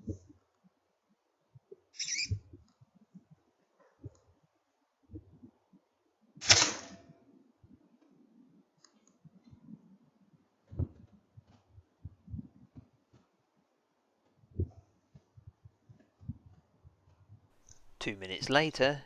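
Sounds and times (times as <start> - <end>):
air rifle shot: 6.4 - 7.1.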